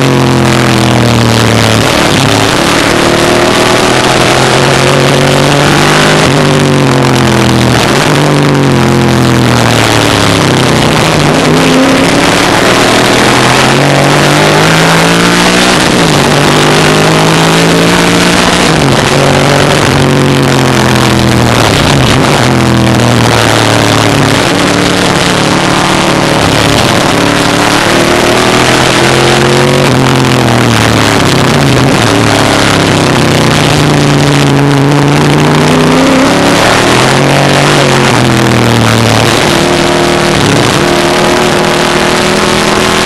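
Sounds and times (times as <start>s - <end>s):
race car engine revving: 0.0s - 43.0s.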